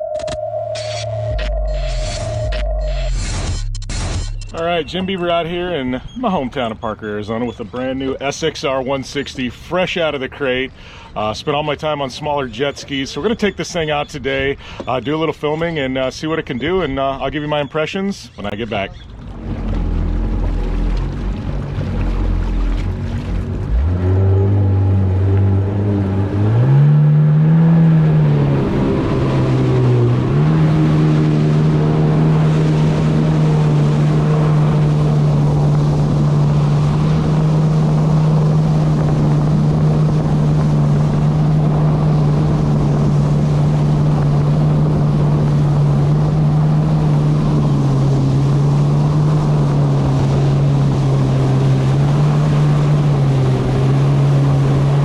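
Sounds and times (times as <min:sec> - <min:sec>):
wind: 0:00.0 - 0:55.0
jet ski engine revving: 0:18.4 - 0:55.0
rushing water: 0:19.0 - 0:55.0.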